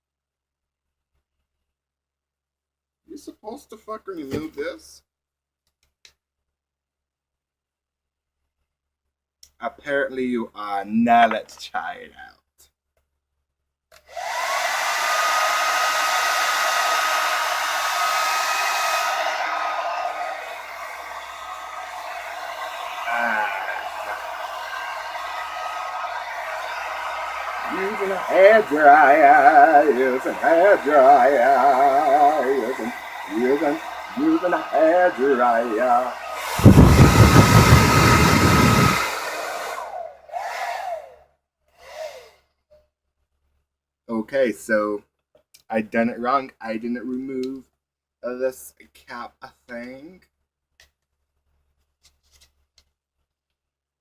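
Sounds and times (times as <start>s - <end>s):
hair dryer running: 14.1s - 41.0s.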